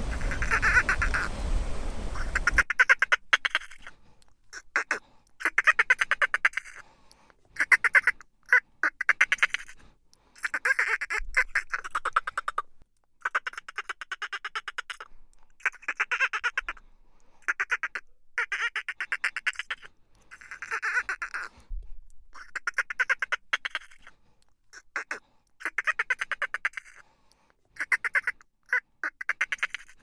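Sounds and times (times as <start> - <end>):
background hiss: 0.0 - 2.7.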